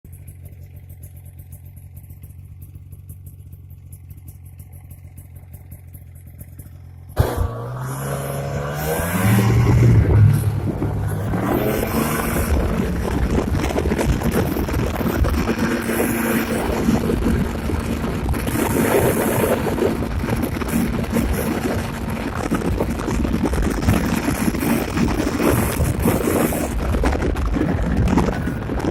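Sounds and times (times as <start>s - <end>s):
snowmobile engine idling and revving: 0.0s - 28.9s
wind buffeting microphone: 8.2s - 28.9s.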